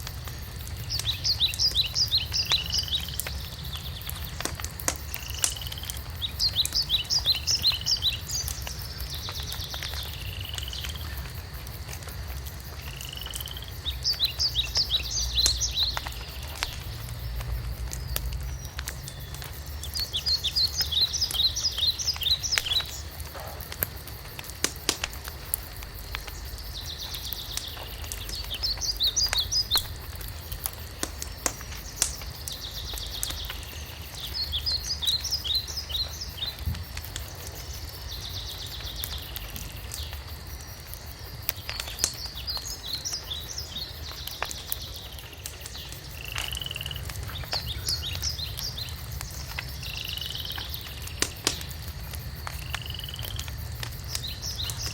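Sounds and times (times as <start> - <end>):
songbird singing: 0.0 - 11.7, 12.4 - 23.4, 24.6 - 40.4, 41.5 - 54.9
wood fire crackling: 0.0 - 54.9
low rumble: 16.7 - 19.8.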